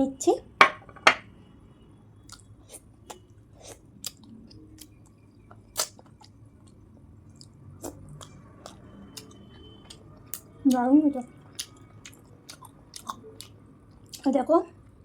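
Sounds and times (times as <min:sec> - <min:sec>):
wet chewing: 0:02.3 - 0:14.3.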